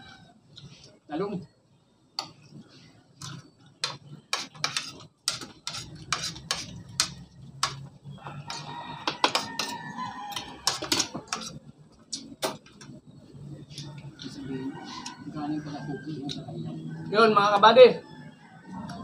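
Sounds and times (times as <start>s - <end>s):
cutlery clinking on plates: 3.8s - 7.8s, 8.5s - 11.6s.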